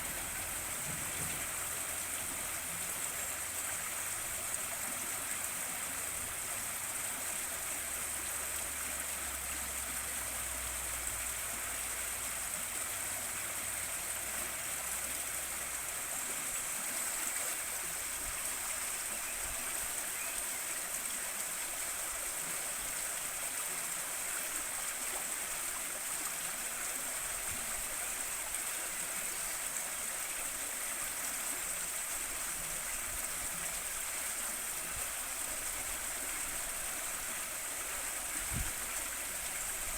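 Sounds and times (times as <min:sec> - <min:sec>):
river water flowing over stones: 0:00.0 - 0:39.9.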